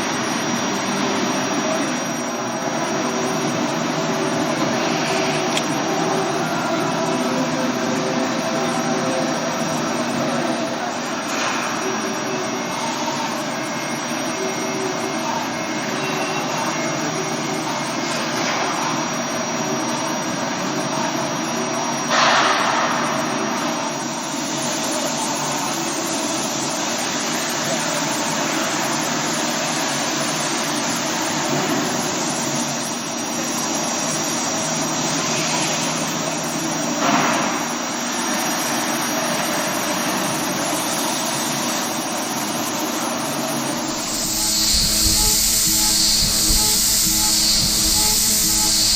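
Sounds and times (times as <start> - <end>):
high spindle whine: 0.0 - 48.9
machine cutting metal: 43.5 - 48.9
burst of hiss: 43.9 - 48.9.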